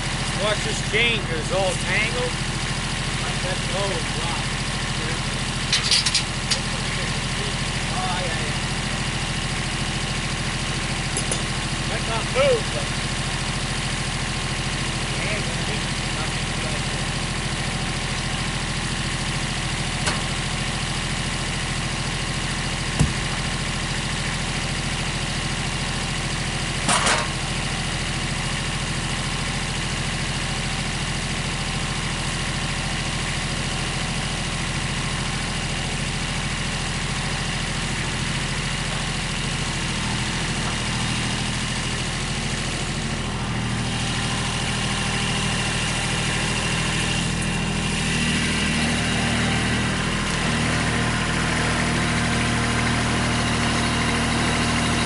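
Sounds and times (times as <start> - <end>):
engine idling: 0.0 - 55.0
sharp engine knocks: 20.0 - 20.4, 22.8 - 23.6, 26.8 - 27.4.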